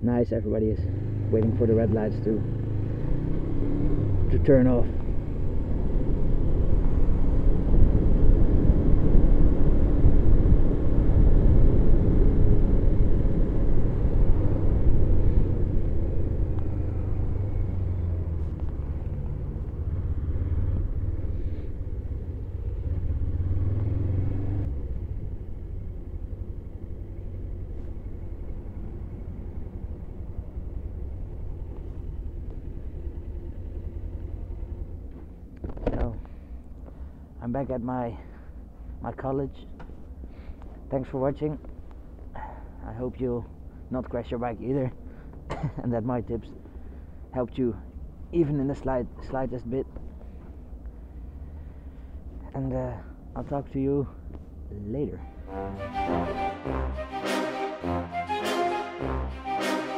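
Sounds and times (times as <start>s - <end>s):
motorcycle engine running: 0.8s - 35.9s.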